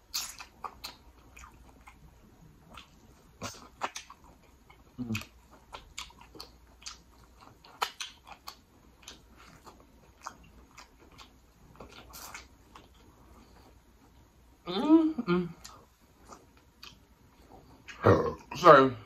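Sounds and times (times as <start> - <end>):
chewing corn on the cob: 0.0 - 14.2.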